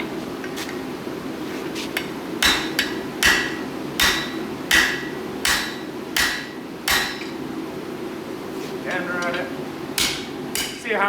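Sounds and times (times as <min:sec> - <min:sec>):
hammer striking steel bar: 0:02.4 - 0:07.4, 0:10.0 - 0:10.9.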